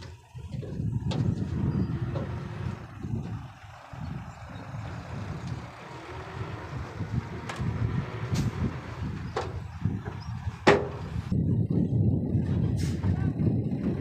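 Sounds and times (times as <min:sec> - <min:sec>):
diesel machinery engine rumbling: 0:00.0 - 0:14.0.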